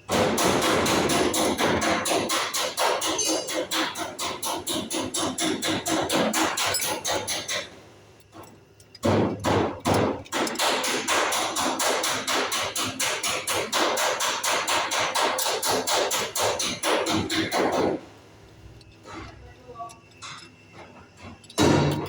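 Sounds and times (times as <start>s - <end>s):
rapid hammer blows: 9.0s - 18.0s.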